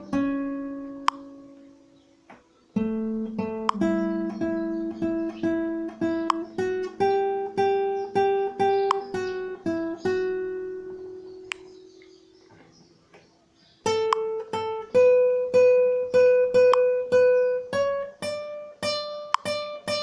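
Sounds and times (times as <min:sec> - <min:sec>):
acoustic guitar strumming chords: 0:00.0 - 0:12.4, 0:13.9 - 0:20.0.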